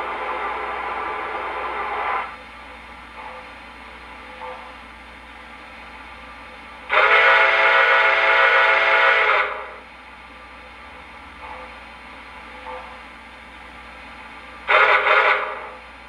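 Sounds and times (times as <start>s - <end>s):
model train steam whistle: 0.0s - 2.4s, 6.9s - 9.9s, 14.6s - 15.8s.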